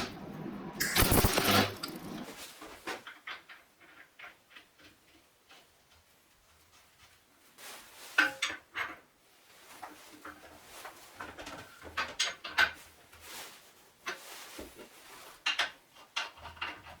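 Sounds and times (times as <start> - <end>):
steel tools clinking and clanking: 0.8 - 2.2.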